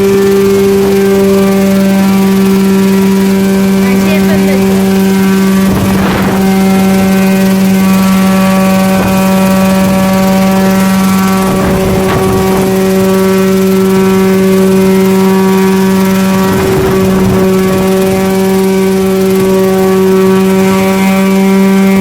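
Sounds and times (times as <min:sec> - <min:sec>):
model helicopter humming: 0:00.0 - 0:22.0
short noisy gusts: 0:00.0 - 0:22.0.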